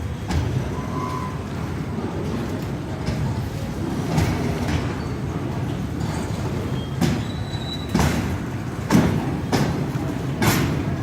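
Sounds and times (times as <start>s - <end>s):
railway wagons rumbling: 0.0s - 11.0s
faint wheel squeal: 0.6s - 1.7s, 4.9s - 5.3s, 6.0s - 8.2s
wheels clanking over rail joints: 1.6s - 11.0s.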